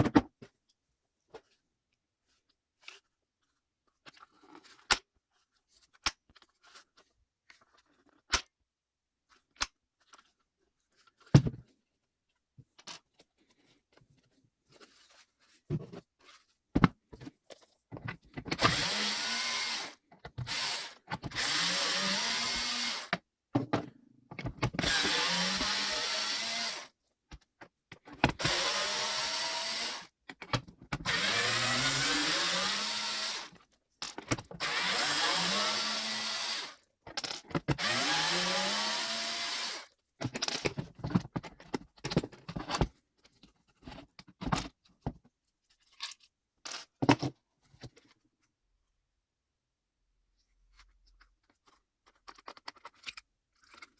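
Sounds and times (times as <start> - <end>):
electric chainsaw motor bursts: 18.6 - 23.1, 24.8 - 26.9, 28.4 - 30.1, 31.1 - 33.5, 34.6 - 36.8, 37.8 - 39.9.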